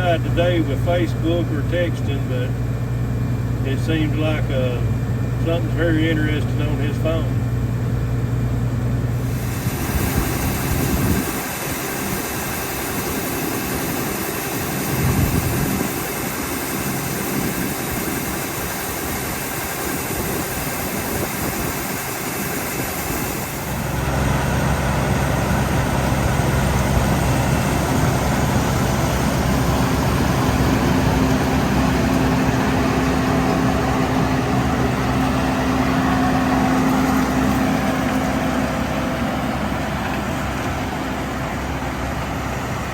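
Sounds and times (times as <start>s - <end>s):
combine harvester running: 0.0s - 42.9s
deep engine hum: 0.0s - 42.9s
steady tone: 9.1s - 36.7s.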